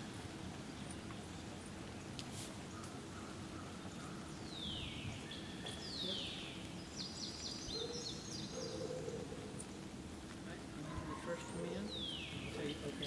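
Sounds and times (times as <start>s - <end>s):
outdoor background noise: 0.0s - 13.0s
bird calls: 2.6s - 9.8s, 10.8s - 13.0s.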